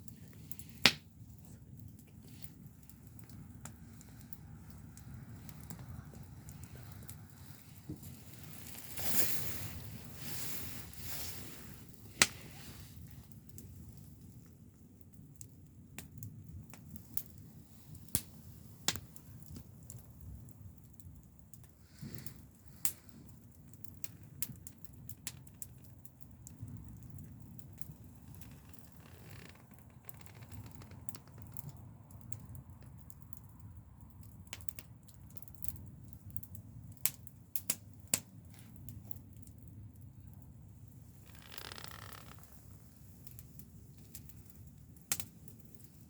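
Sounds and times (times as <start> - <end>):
low steady rumble: 0.0 - 14.9
fire snapping: 0.0 - 46.0
soft whooshing of campfire: 0.0 - 46.0.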